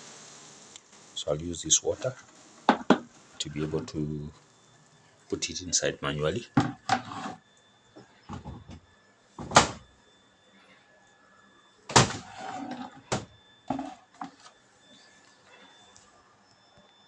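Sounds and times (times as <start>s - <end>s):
knocks and thuds of handling: 2.7s - 3.1s, 6.6s - 7.0s.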